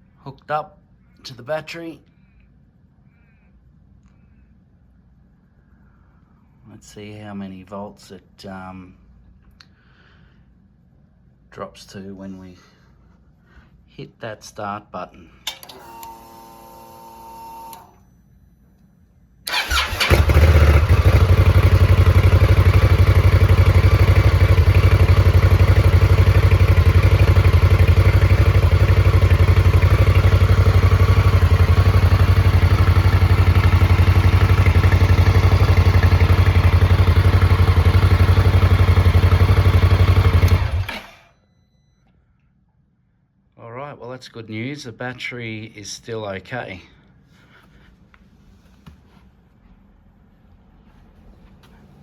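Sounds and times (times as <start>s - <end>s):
motorcycle engine idling: 19.5s - 41.1s
motorcycle starter cranking: 19.5s - 41.3s.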